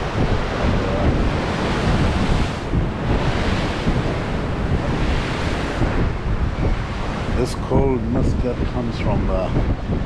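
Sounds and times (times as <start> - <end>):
surf breaking: 0.0 - 10.0
wind buffeting microphone: 0.0 - 10.0.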